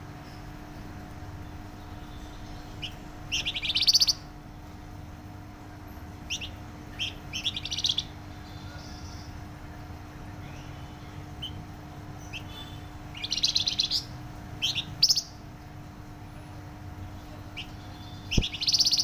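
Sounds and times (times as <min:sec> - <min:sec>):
steady low hum: 0:00.0 - 0:19.0
songbird singing trilled phrases: 0:01.4 - 0:04.3, 0:06.2 - 0:09.4, 0:10.4 - 0:15.4, 0:17.0 - 0:19.0.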